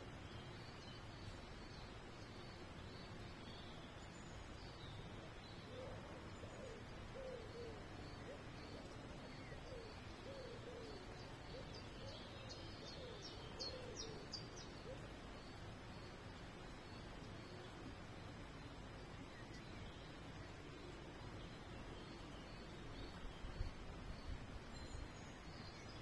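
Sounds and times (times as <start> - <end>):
bird hooting: 5.7 - 8.9.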